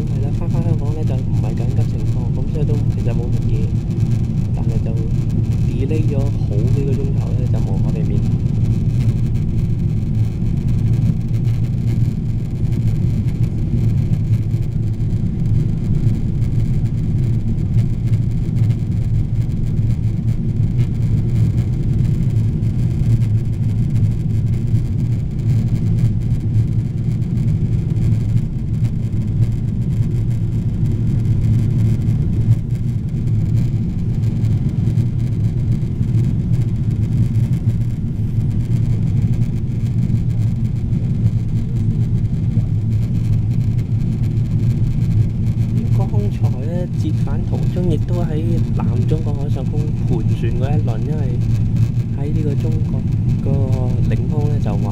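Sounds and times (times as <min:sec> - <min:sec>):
airflow noise: 0:00.0 - 0:09.4
airliner cabin engine rumble: 0:00.0 - 0:54.9.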